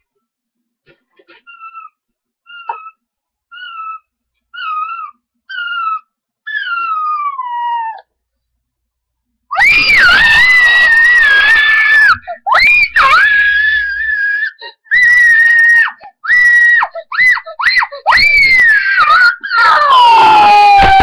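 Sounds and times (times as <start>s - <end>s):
child screaming: 9.5s - 21.0s.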